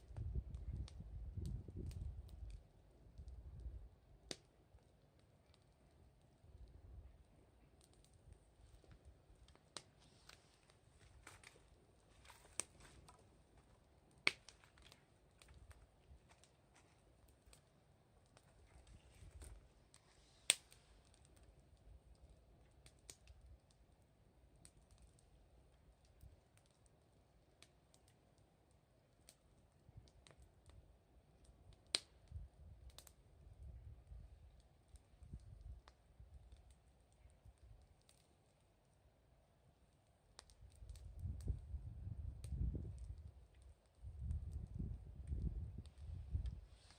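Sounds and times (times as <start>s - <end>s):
bonfire crackling and popping: 0.0s - 46.9s
sharp wood crack: 14.2s - 15.7s.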